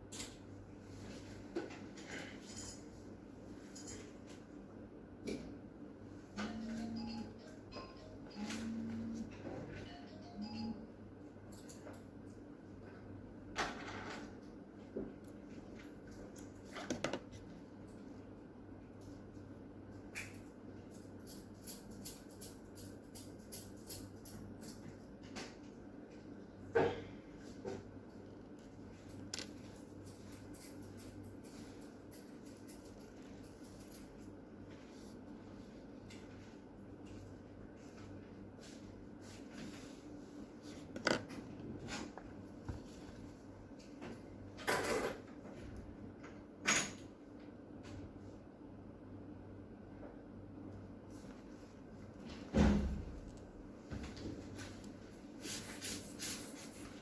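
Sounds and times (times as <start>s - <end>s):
metal tools clicking and tapping: 20.2s - 24.9s.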